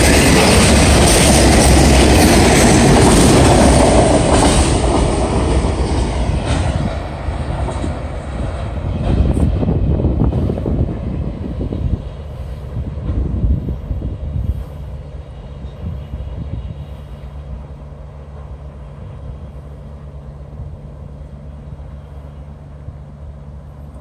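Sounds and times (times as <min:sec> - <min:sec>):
train cars rumbling on rails: 0:00.0 - 0:24.0.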